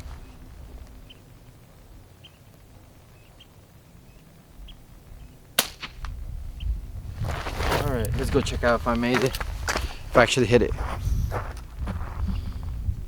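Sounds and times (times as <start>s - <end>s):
air rifle shot: 5.6s - 6.2s.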